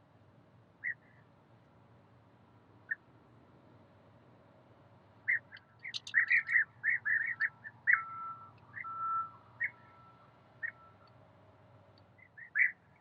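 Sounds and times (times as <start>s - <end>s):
bird chirping: 5.3s - 9.0s.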